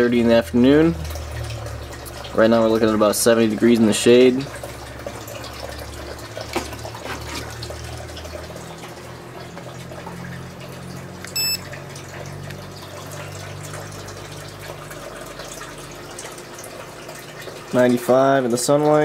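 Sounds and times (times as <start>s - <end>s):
water running and splashing: 0.0s - 19.0s
low steady hum: 4.4s - 17.6s
short electronic beep: 11.3s - 11.6s.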